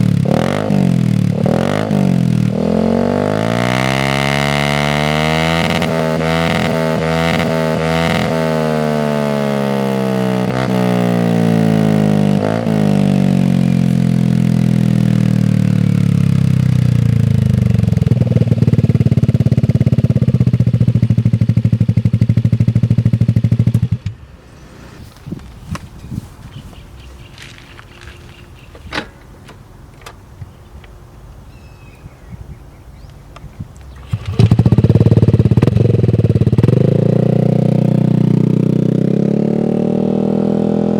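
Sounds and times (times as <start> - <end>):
motor scooter engine idling: 12.9 - 24.2, 33.9 - 38.4
engine throttle blips: 33.4 - 38.8.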